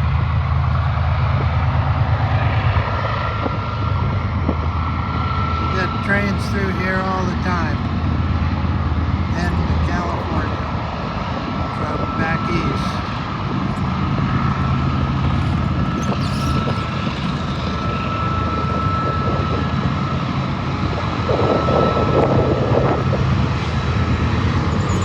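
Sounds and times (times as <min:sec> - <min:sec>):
diesel train engine drone: 0:00.0 - 0:25.0
thin high tone: 0:11.8 - 0:19.0.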